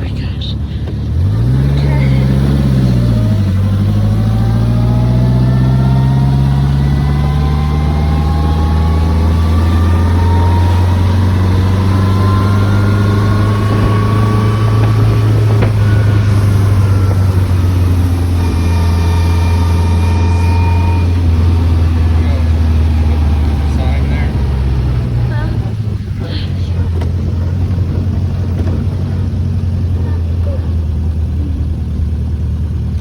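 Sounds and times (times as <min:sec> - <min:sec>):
sports car engine and exhaust: 0:00.0 - 0:33.0
wind and road noise: 0:00.0 - 0:33.0.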